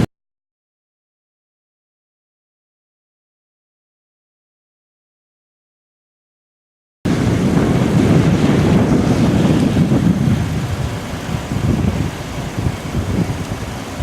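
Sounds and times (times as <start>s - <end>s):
strong wind buffeting microphone: 7.1s - 14.0s.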